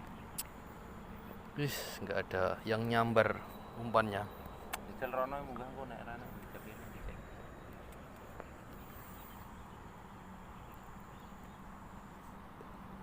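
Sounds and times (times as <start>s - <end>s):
low rumble and hiss: 0.0s - 13.0s
thin high steady tone: 0.0s - 13.0s.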